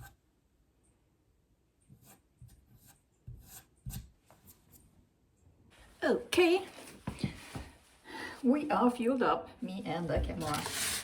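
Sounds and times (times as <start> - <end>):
putty knife scraping wood: 10.4 - 11.0.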